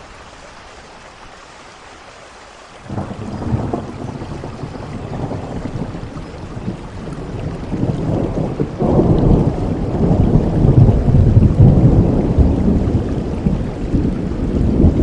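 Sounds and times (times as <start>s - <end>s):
rain falling: 0.0s - 15.0s
deep thunder rumble: 2.9s - 15.0s.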